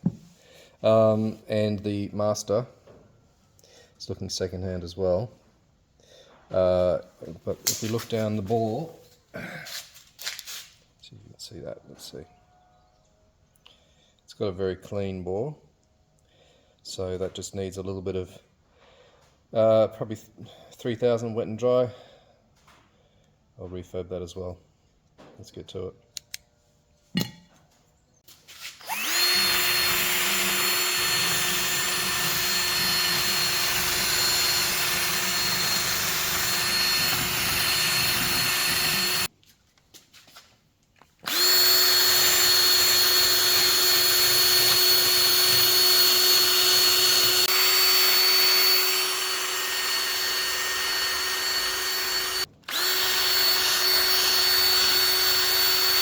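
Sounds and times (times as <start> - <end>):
electric power drill running: 28.6 - 39.3, 41.2 - 56.0.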